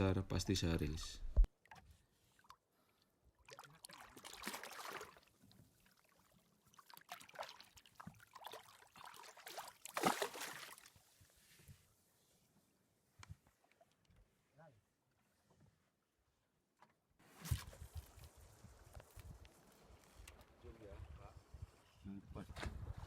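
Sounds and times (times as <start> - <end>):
water splashing and trickling: 1.5 - 11.1
loud water splashes: 3.8 - 5.2, 8.4 - 10.8.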